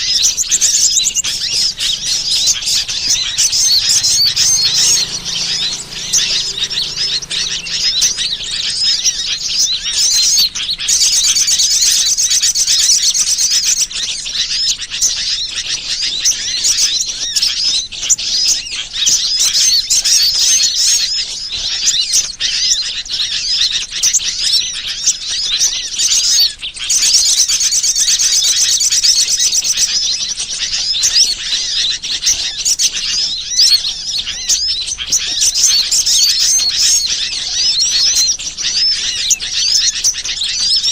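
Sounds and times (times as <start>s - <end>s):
small birds chirping and twittering: 0.0s - 40.9s.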